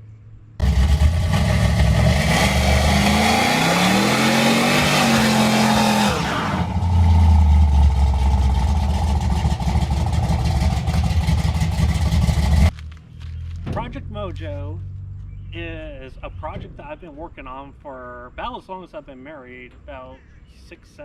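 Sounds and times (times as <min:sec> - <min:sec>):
truck engine revving and idling: 0:00.6 - 0:12.8.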